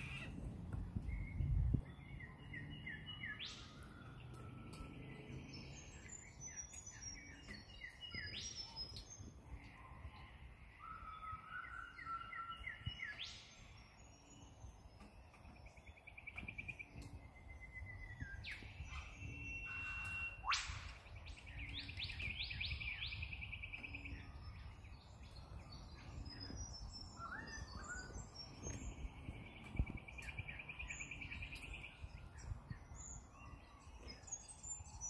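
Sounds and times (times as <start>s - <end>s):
upward sweeping bird call: 0.0s - 0.4s, 18.9s - 21.1s
birds chirping: 0.0s - 35.0s.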